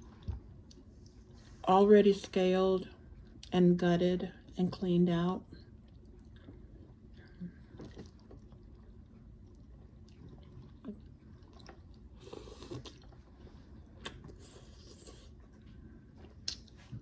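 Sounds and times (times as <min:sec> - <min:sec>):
person chewing food: 0:05.6 - 0:17.0.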